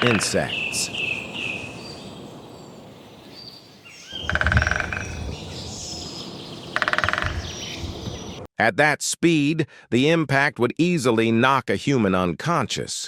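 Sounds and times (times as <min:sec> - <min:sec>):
woodpecker drumming on a tree: 0:00.0 - 0:02.4, 0:03.8 - 0:08.4
faint birdsong: 0:00.0 - 0:08.5.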